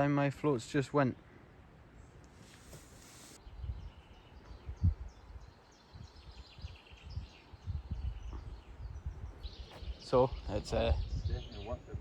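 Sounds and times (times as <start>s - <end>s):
small bird chirping: 3.0s - 12.0s
wind buffeting microphone: 3.4s - 12.0s.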